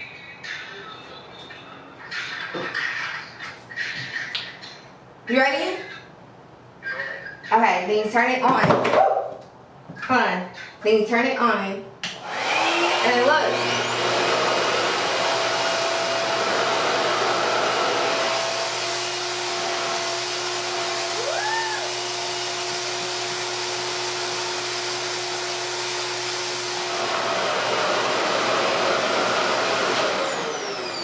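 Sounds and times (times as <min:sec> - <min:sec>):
hair dryer running: 0:12.0 - 0:31.0.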